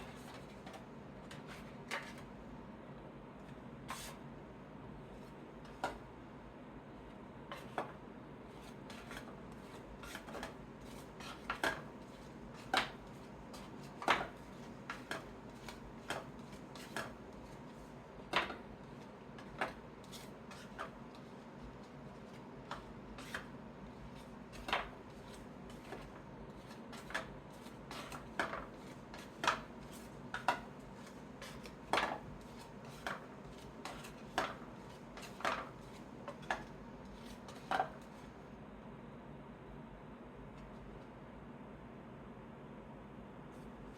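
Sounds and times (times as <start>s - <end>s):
cards tapping and clicking: 27.9s - 36.7s.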